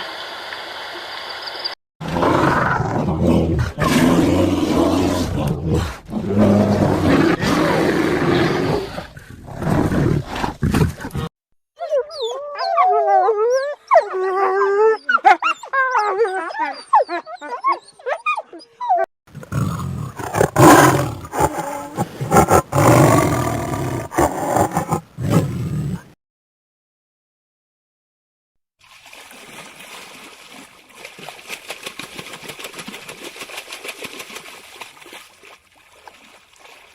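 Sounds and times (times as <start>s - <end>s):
rough animal call: 19.4s - 26.0s.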